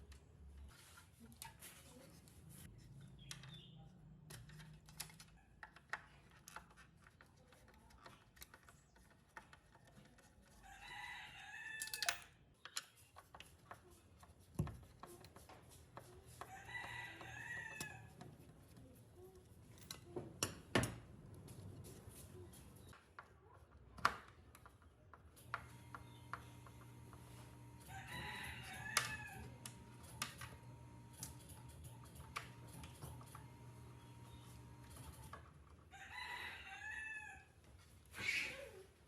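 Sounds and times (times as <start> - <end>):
rooster crowing: 10.7 - 11.9, 16.5 - 18.1, 27.8 - 29.8, 35.9 - 37.6.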